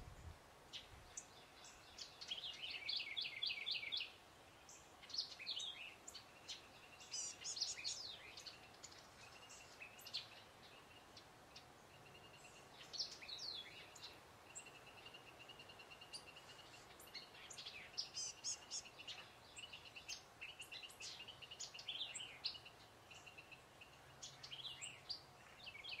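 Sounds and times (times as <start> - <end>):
faint outdoor background: 0.0 - 26.0
small songbirds chirping and trilling: 0.0 - 26.0.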